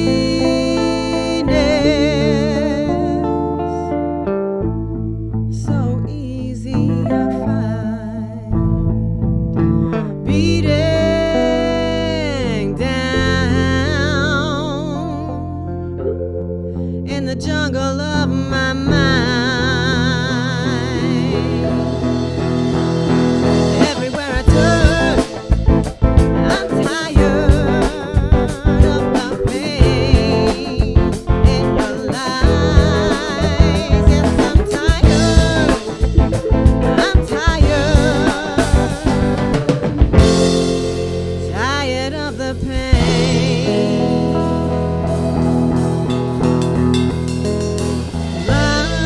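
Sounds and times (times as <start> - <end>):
funk band playing: 0.0 - 49.0
organ sustained chords: 10.6 - 49.0.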